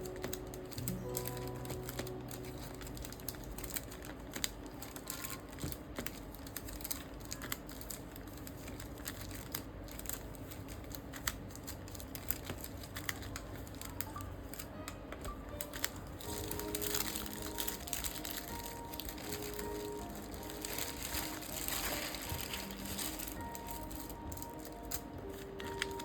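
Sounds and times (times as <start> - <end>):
rustling: 11.9 - 26.0.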